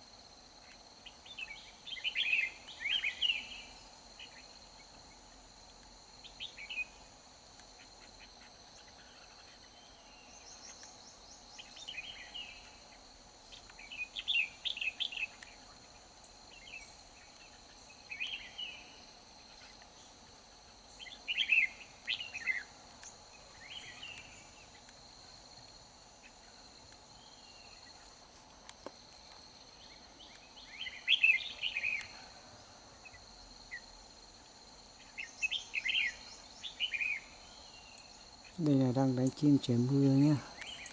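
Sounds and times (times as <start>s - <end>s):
high insect drone: 0.0s - 40.9s
birds singing in bright bursts: 0.6s - 5.5s, 6.2s - 25.0s, 26.1s - 28.2s, 29.6s - 33.9s, 35.0s - 40.9s.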